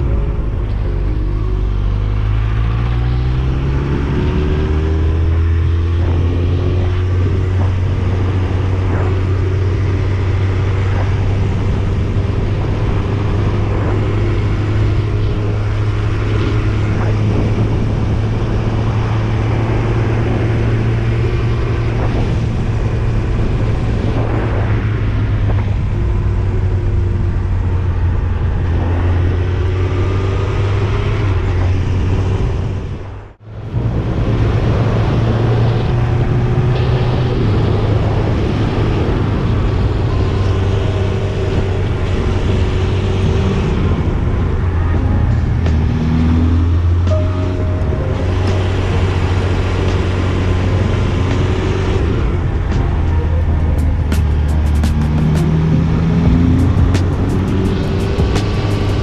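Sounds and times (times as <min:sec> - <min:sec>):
wind rushing over microphone: 0:00.0 - 0:59.0
motorcycle engine running: 0:33.6 - 0:59.0.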